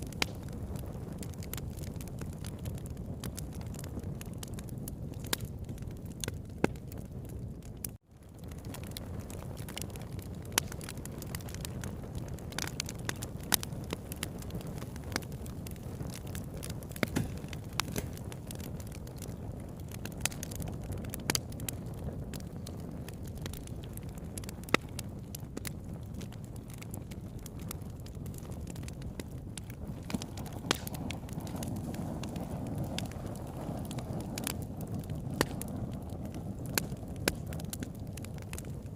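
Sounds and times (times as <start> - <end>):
low rumble of flame: 0.0 - 38.9
wood crackling and popping: 0.0 - 38.9.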